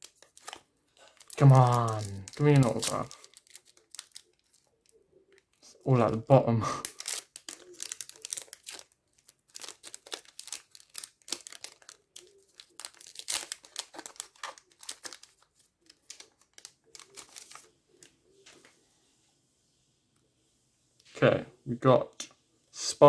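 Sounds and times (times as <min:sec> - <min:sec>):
card pack wrapper crinkling and tearing: 0:00.0 - 0:18.6.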